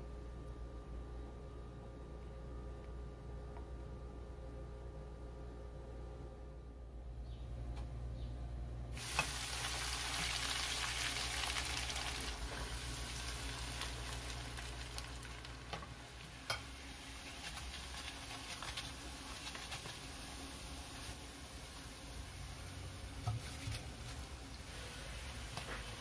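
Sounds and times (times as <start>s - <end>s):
food frying in hot oil: 9.0s - 26.0s.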